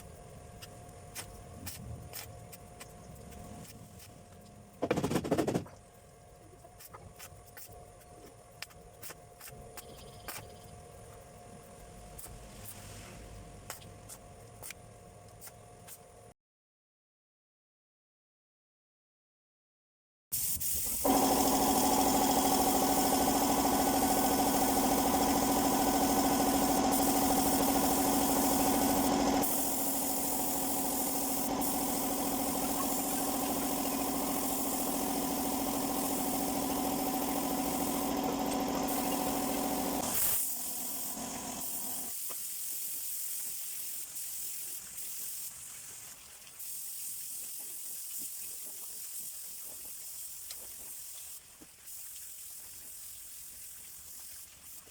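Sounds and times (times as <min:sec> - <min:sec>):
hiss of paint spray: 0:12.2 - 0:13.8, 0:20.3 - 0:54.9
air compressor motor humming: 0:21.0 - 0:42.2.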